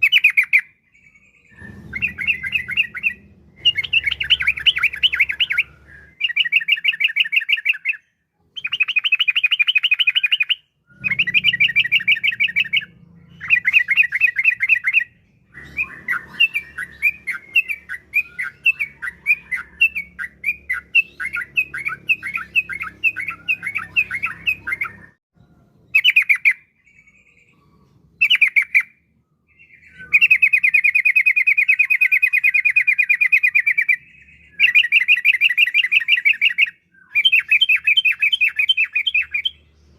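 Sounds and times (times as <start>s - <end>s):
bird chattering: 0.0s - 0.8s, 1.5s - 8.0s, 8.6s - 25.1s
bird singing bubbling trills: 0.0s - 39.9s.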